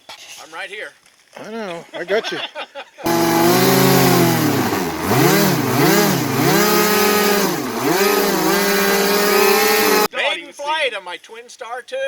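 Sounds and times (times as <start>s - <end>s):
model plane motors and propellers: 3.1s - 10.1s.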